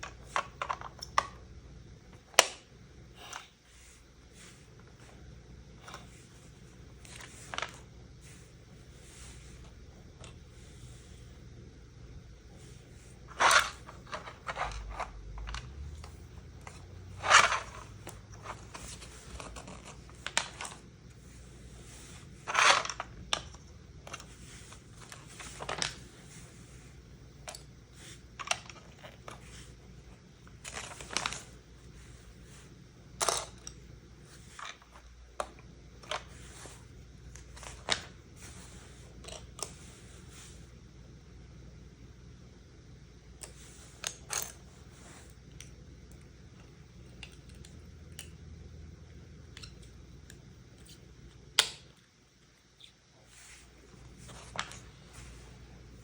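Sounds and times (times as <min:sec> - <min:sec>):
plastic packaging rustling: 0:30.5 - 0:31.6.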